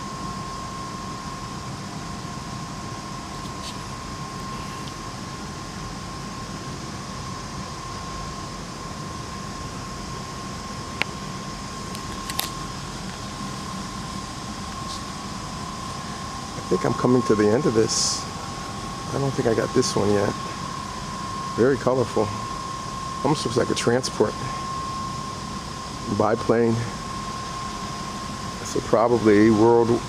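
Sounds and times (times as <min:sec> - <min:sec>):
low hum: 0:00.0 - 0:30.0
thin high whine: 0:00.0 - 0:30.0
hiss: 0:14.8 - 0:16.8.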